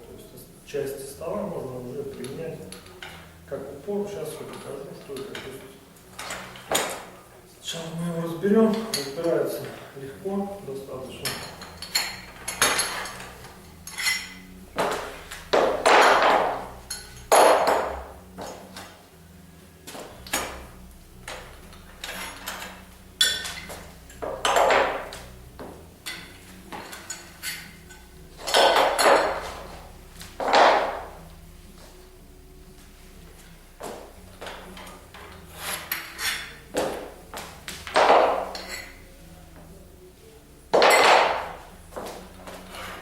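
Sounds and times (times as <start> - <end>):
metal parts knocking and clanking: 11.2 - 18.6, 21.3 - 25.2, 26.0 - 29.6.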